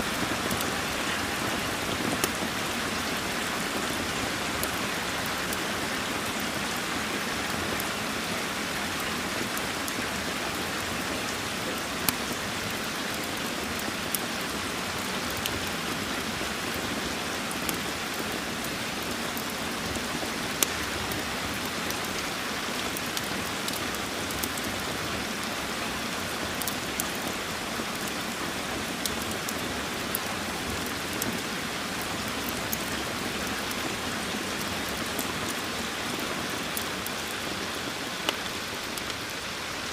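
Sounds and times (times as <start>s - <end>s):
steady rain falling: 0.0s - 39.9s
wood fire popping and crackling: 0.1s - 7.1s, 17.4s - 24.9s, 26.6s - 39.3s.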